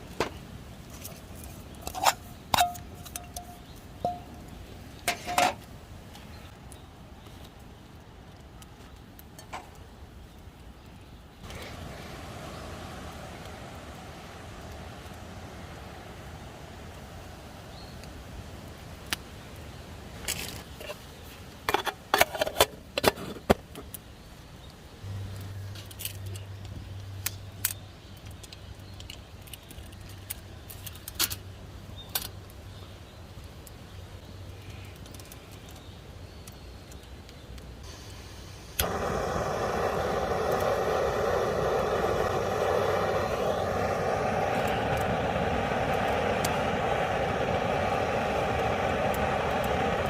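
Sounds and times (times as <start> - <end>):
low background hum: 37.8 - 50.0.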